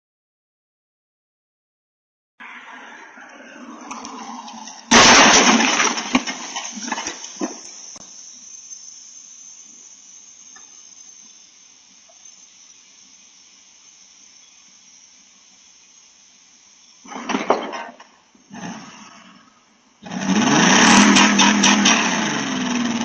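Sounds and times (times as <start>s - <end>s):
vehicle crash: 2.4s - 8.0s, 17.1s - 18.9s, 20.1s - 23.0s
faint steady hiss: 2.8s - 20.1s
debris knocking and clattering: 4.9s - 7.8s.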